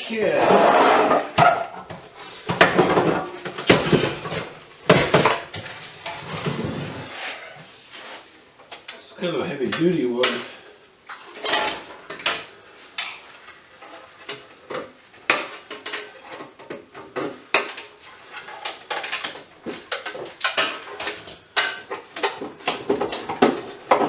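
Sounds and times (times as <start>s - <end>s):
metal parts clinking and clattering: 11.3s - 14.4s, 17.1s - 24.0s.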